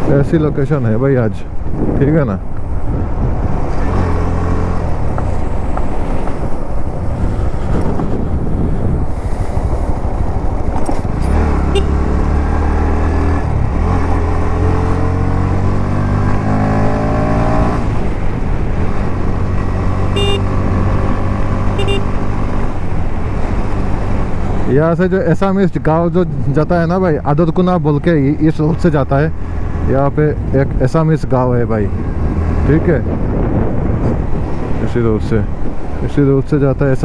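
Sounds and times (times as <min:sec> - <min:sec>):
road and wind noise: 0:00.0 - 0:37.0
motorcycle engine accelerating: 0:09.1 - 0:24.6.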